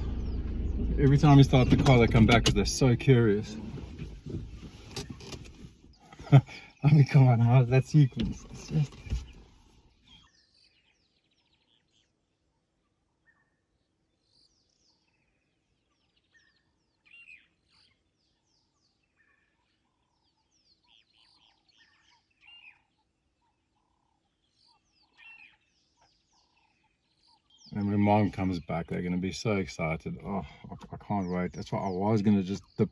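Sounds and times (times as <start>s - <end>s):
birds chirping and whistling: 0.0s - 9.5s.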